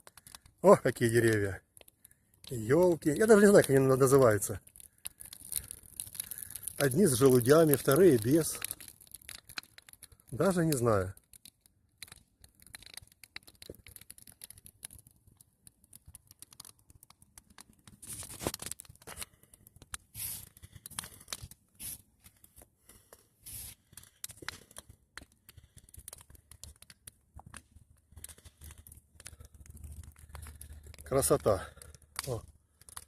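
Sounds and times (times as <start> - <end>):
bonfire crackling and popping: 0.0 - 33.0.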